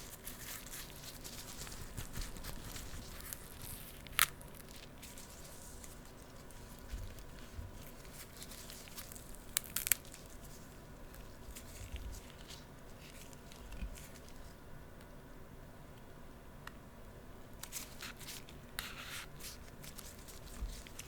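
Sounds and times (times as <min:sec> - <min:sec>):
sugar glaze crackling: 0:00.0 - 0:14.5.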